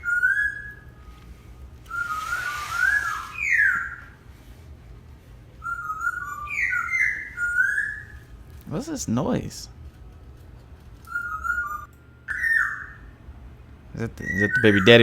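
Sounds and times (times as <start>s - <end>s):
brief hiss of noise: 1.9s - 3.5s.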